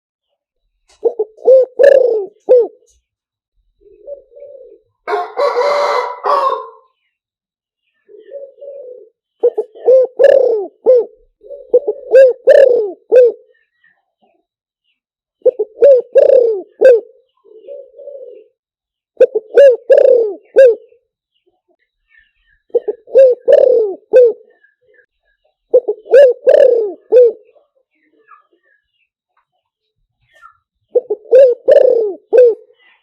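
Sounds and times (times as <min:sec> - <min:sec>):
dove cooing: 0:01.0 - 0:02.9, 0:03.8 - 0:06.9, 0:08.1 - 0:13.6, 0:15.4 - 0:18.6, 0:19.2 - 0:21.0, 0:22.7 - 0:24.6, 0:25.7 - 0:27.6, 0:30.9 - 0:32.8.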